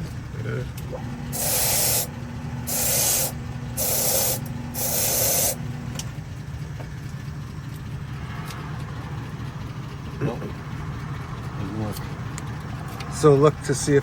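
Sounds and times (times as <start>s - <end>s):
low engine-like hum: 0.0s - 14.0s
short hissing spray bursts: 1.3s - 2.1s, 2.7s - 5.6s.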